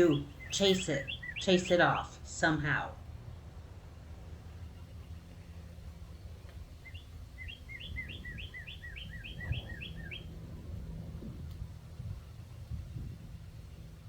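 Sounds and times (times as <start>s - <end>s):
bird chirping rapidly: 0.0s - 2.7s, 6.8s - 10.4s.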